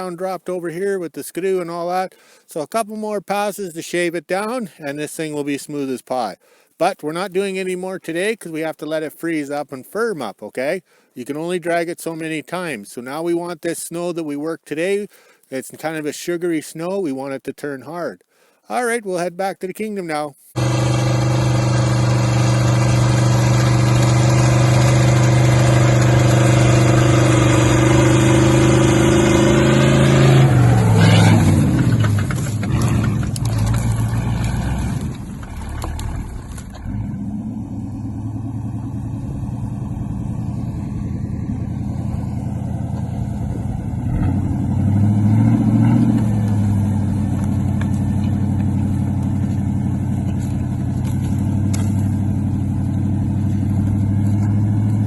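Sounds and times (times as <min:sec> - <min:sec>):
vehicle engine running: 0:20.6 - 0:55.0.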